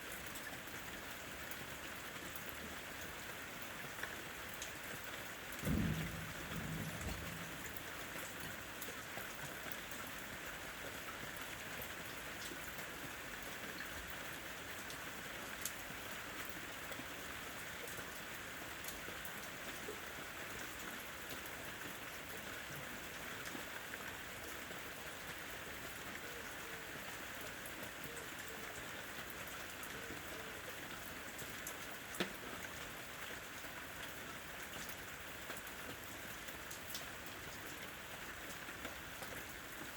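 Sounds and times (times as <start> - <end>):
steady rain: 0.0 - 39.9
low rumble: 5.6 - 7.8.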